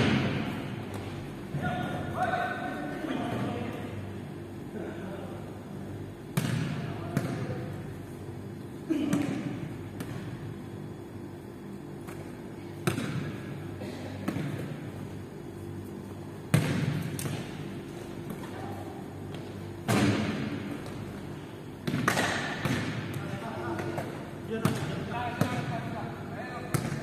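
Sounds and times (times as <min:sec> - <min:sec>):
basketball bouncing in gym: 0:06.3 - 0:07.7, 0:08.9 - 0:10.5, 0:12.8 - 0:13.6, 0:14.2 - 0:14.9, 0:16.5 - 0:18.7, 0:21.8 - 0:25.8, 0:26.6 - 0:27.0.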